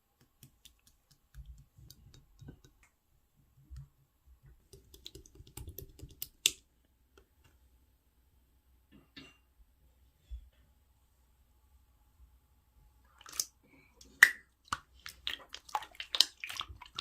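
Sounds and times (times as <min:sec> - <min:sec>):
slime squished by hand: 0:14.1 - 0:17.0.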